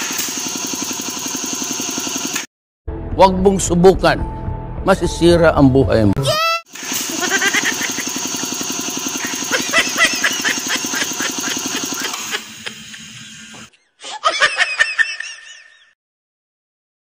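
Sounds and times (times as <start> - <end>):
air compressor running: 0.0 - 2.5, 6.7 - 13.7.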